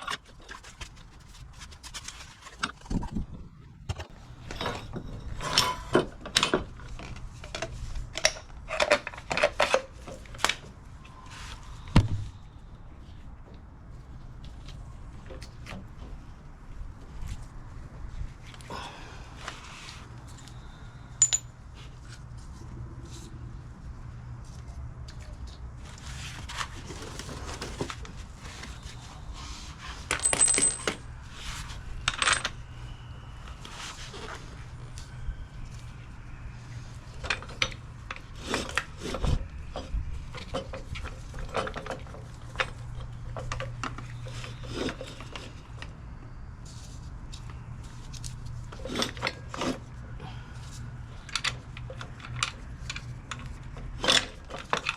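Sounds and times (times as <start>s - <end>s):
metal tools clinking: 21.2s - 21.6s, 30.1s - 31.1s, 32.1s - 32.6s
steady low hum: 27.8s - 53.9s.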